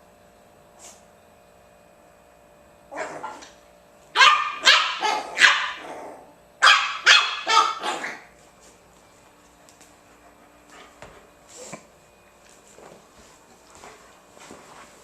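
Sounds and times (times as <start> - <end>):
dog barking: 4.2 - 5.9, 6.6 - 8.3.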